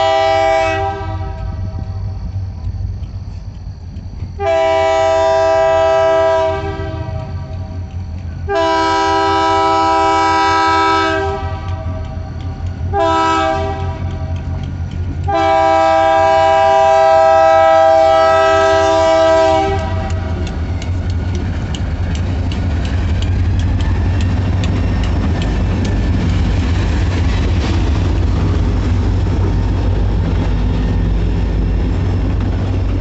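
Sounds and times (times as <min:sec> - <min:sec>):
locomotive air horn blasts: 0:00.0 - 0:01.8, 0:04.4 - 0:07.8, 0:08.5 - 0:12.2, 0:12.9 - 0:14.4, 0:15.3 - 0:20.5
passing train rumble: 0:00.0 - 0:33.0.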